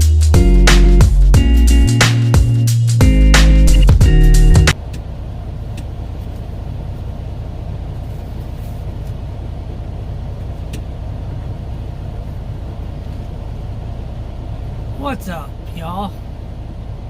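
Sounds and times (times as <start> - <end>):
diesel truck engine idling: 4.0 - 17.0.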